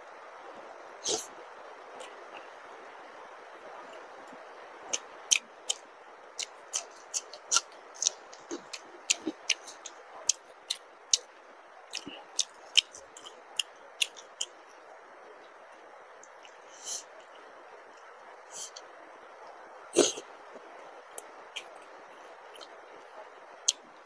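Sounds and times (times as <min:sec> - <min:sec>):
wet chewing smacks: 0:06.4 - 0:11.3.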